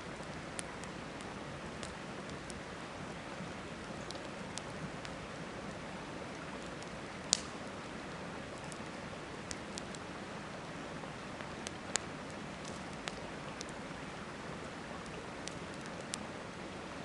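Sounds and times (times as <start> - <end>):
campfire crackling and popping: 0.0 - 16.5.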